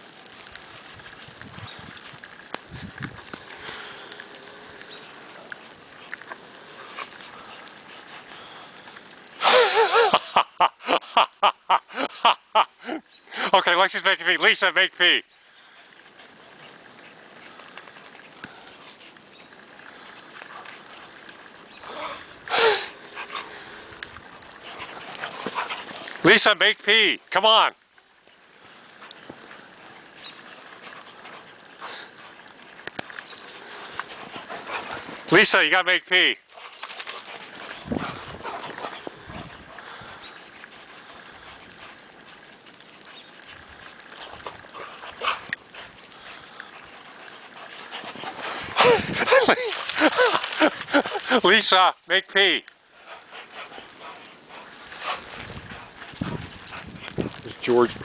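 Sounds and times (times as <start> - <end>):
faint rustling: 36.4 - 51.5, 52.6 - 58.0.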